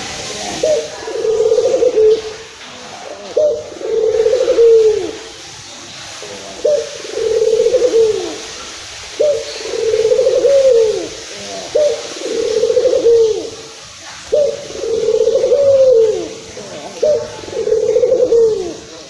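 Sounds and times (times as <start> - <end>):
dove cooing: 0.0 - 5.4, 6.1 - 19.0.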